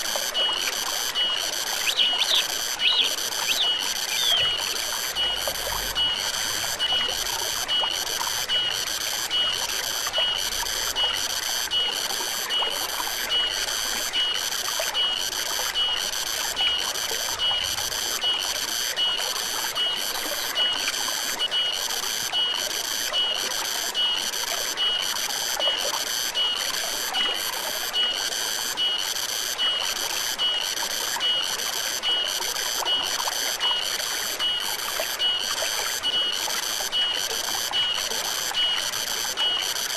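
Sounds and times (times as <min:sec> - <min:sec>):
stream running: 0:00.0 - 0:39.9
high-pitched animal chirping: 0:01.8 - 0:04.6.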